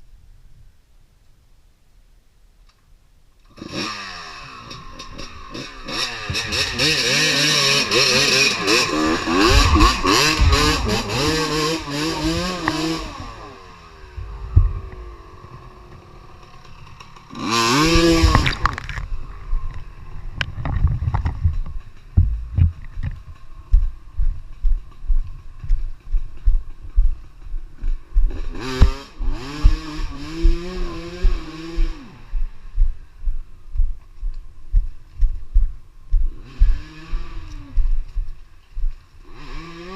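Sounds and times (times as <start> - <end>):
dirt bike engine revving: 3.5 - 20.4, 21.1 - 34.2, 34.8 - 39.9
low thumps: 9.0 - 13.3, 14.1 - 16.1, 17.8 - 39.0.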